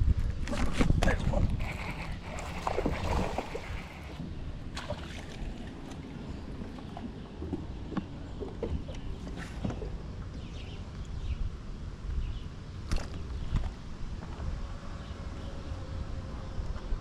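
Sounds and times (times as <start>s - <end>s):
wind and water rumble: 0.0s - 17.0s
knocks and clicks on a boat: 5.8s - 11.1s.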